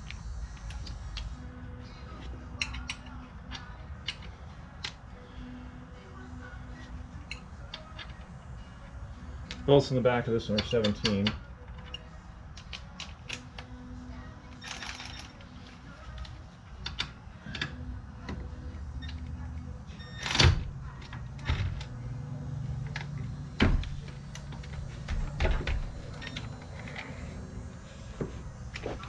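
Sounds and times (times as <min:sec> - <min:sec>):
low steady hum: 0:00.0 - 0:29.0
tools clicking and clanking on metal: 0:02.2 - 0:05.0, 0:10.4 - 0:13.7, 0:14.5 - 0:18.4.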